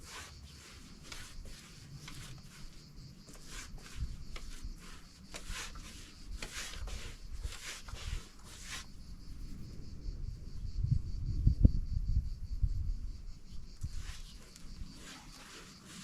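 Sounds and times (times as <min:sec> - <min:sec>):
brushing strokes on a surface: 0:00.0 - 0:09.7, 0:13.7 - 0:16.0.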